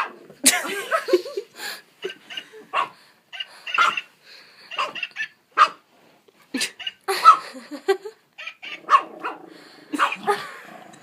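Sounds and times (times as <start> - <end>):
puppy barking and yipping: 2.1 - 4.1, 4.7 - 5.8, 6.8 - 7.4, 8.4 - 9.4, 10.0 - 10.2.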